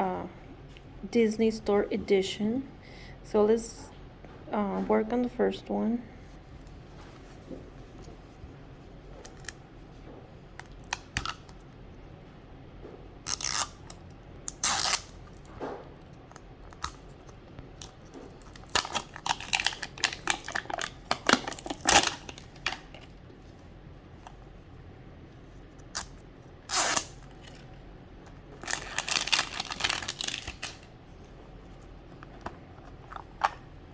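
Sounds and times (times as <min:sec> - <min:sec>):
plastic wrapping tearing and crinkling: 0:13.3 - 0:15.5, 0:17.8 - 0:23.1, 0:26.7 - 0:27.7, 0:28.6 - 0:30.9.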